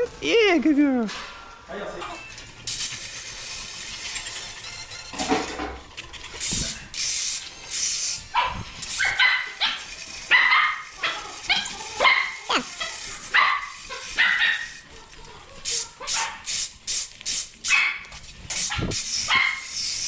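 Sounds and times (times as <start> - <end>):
bursts of hissing: 2.0 - 5.4, 6.3 - 20.0
dog barking: 8.3 - 14.9, 15.8 - 16.5, 17.7 - 18.1, 18.7 - 19.7.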